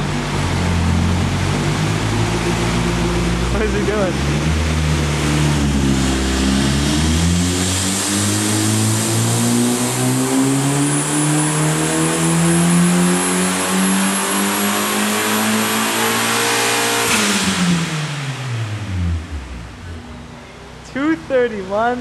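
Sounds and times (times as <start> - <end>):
car engine revving: 0.0 - 21.7.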